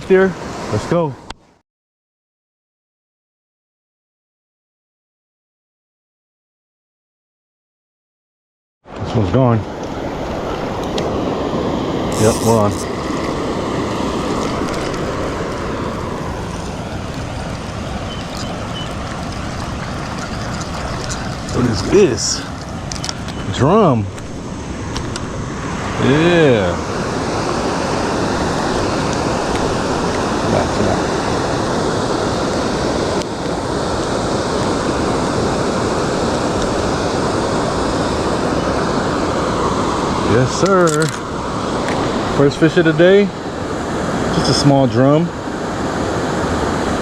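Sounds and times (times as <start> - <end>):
waterfall roaring: 9.7 - 47.0.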